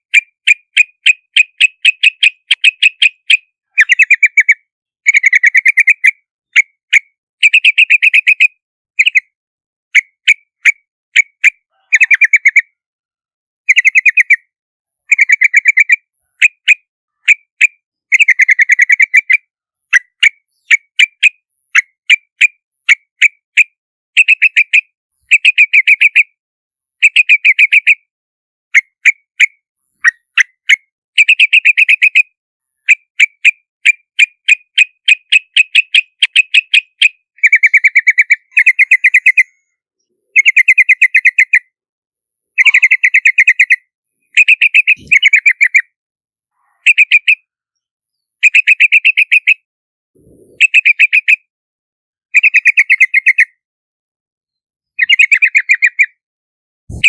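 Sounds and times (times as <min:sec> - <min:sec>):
bird rapid chattering calls: 0:00.1 - 0:06.7, 0:10.0 - 0:12.7, 0:15.1 - 0:23.4, 0:32.8 - 0:39.6, 0:40.3 - 0:41.7, 0:42.6 - 0:45.9, 0:48.4 - 0:49.6, 0:50.2 - 0:51.4, 0:52.4 - 0:53.5, 0:55.0 - 0:56.2.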